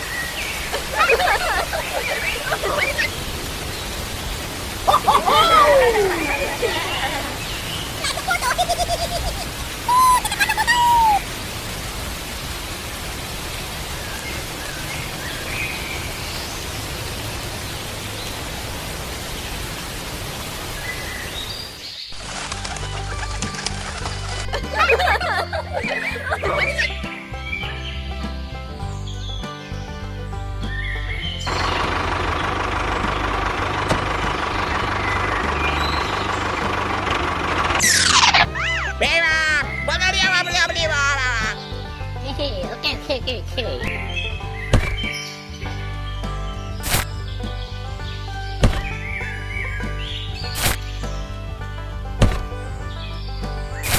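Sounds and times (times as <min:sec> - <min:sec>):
low musical bass line: 0:00.0 - 0:08.7, 0:22.2 - 0:53.9
engine-like running noise: 0:00.0 - 0:10.0, 0:11.0 - 0:20.7, 0:22.2 - 0:53.9.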